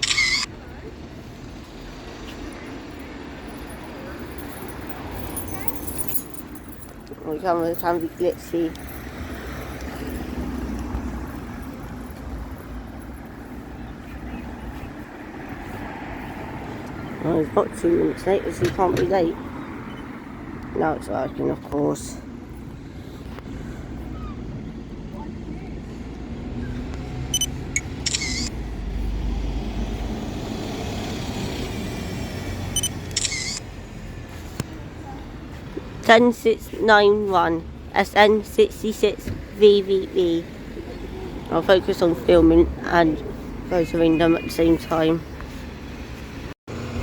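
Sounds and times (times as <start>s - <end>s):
camera shutter sound: 0.0s - 0.5s, 27.4s - 28.5s, 32.8s - 33.7s
large vehicle engine rumbling: 0.0s - 47.0s.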